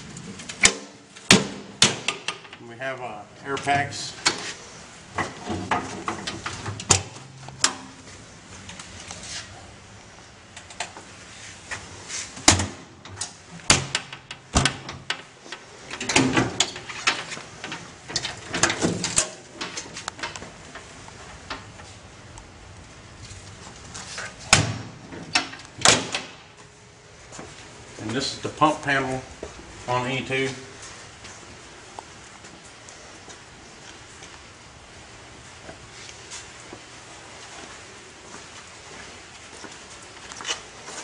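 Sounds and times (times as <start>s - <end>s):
knocks clicks and clunks: 12.4s - 21.9s.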